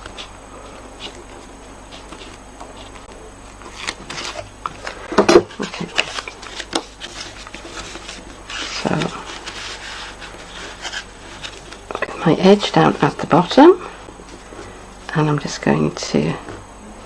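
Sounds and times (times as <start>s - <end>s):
card and tape rustling: 0.0s - 12.1s.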